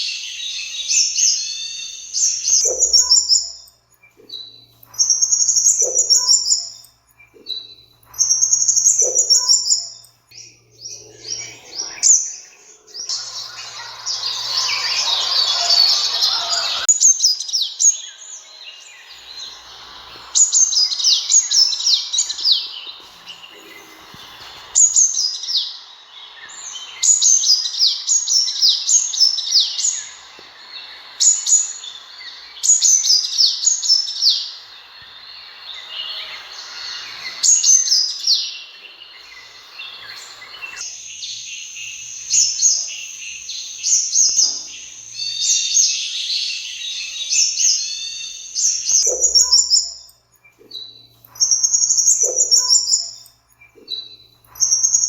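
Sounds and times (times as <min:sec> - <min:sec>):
sunbird chirps and trills: 0:00.0 - 0:55.0.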